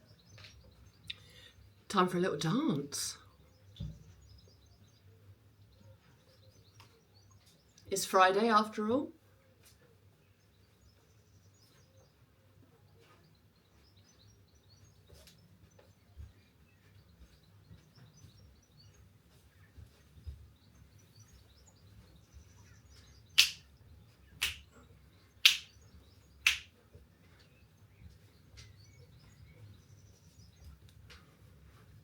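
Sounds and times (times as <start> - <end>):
faint birds chirping: 0.0 - 32.0
finger snaps: 23.4 - 23.6, 24.4 - 24.6, 25.4 - 25.7, 26.4 - 26.7.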